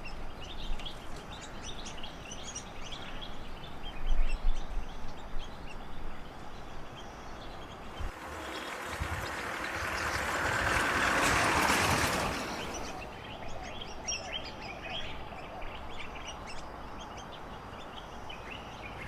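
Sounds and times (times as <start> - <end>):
birds chirping: 0.0 - 19.0
rush of wind-like noise: 7.8 - 19.0.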